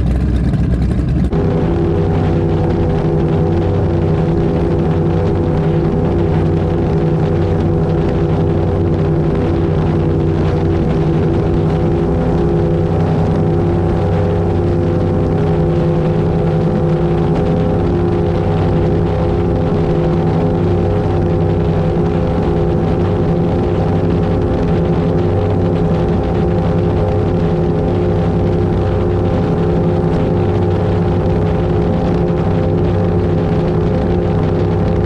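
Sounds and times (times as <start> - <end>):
boat engines droning: 0.0 - 35.0
water rushing on hull: 0.0 - 35.0.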